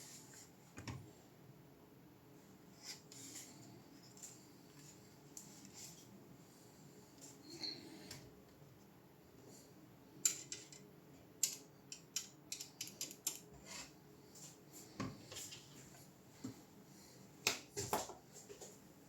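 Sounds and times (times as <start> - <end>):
faint room hiss: 0.0 - 19.0
small tools clicking and tapping: 10.2 - 13.5.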